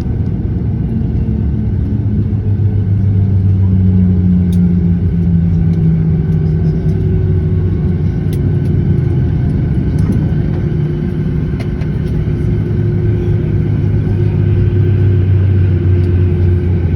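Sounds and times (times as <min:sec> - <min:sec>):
jet engines rumbling: 0:00.0 - 0:16.9.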